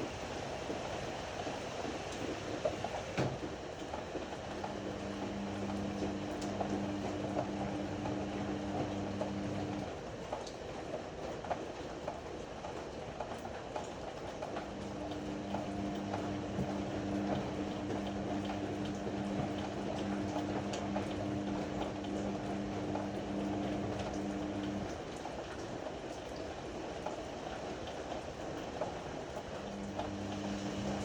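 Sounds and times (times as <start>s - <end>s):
washing machine hum: 0.0s - 31.0s
water sloshing in drum: 14.6s - 25.1s.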